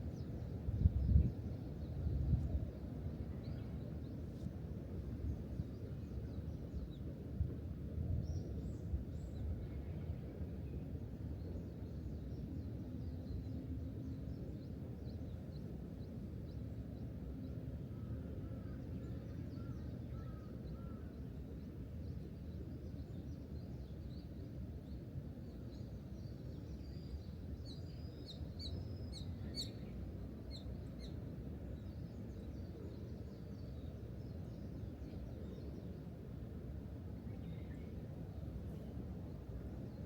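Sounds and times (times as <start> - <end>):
wind on microphone rumble: 0.6 - 3.0.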